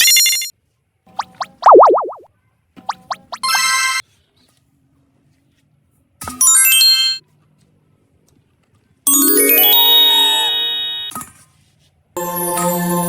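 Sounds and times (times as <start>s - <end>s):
bright jingle: 9.1s - 11.1s, 12.2s - 13.0s
ringing chime chord: 9.1s - 11.1s, 12.2s - 13.0s.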